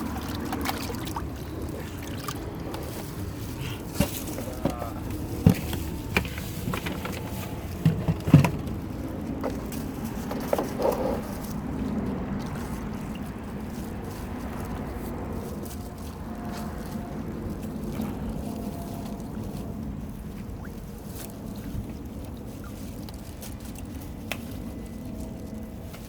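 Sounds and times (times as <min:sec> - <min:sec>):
handling knocks and clatters: 0:00.0 - 0:11.7.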